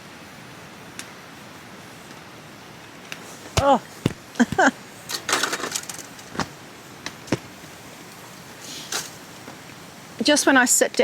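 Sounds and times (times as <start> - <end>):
rain hiss: 0.0 - 11.0
rustling: 3.1 - 9.7.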